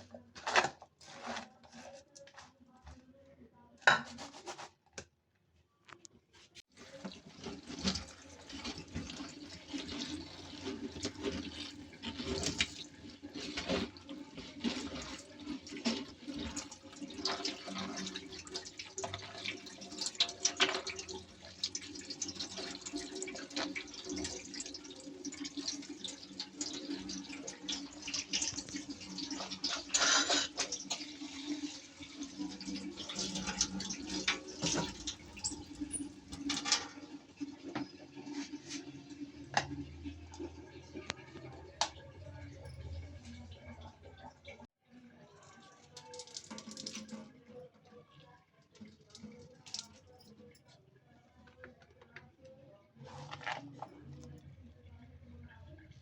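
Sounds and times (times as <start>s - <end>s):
dishes clinking and knocking: 3.9s - 4.4s, 29.4s - 31.0s, 33.2s - 37.1s
tap water running into sink: 6.8s - 44.7s, 45.9s - 47.5s.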